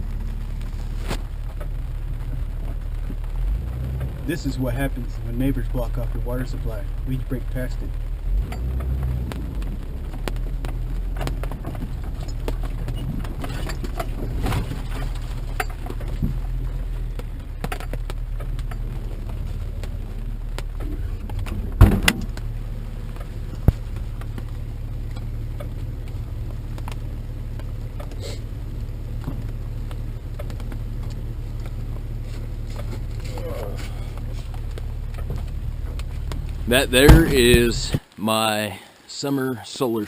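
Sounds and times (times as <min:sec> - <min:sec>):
vehicle engine rumble from inside: 0:00.0 - 0:38.1
rattles and knocks: 0:10.1 - 0:27.0, 0:34.0 - 0:38.0.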